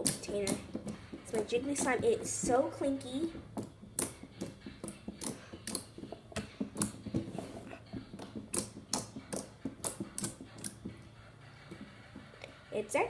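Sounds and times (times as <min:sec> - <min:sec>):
slime clicking and popping: 0:03.6 - 0:07.0, 0:08.2 - 0:10.9.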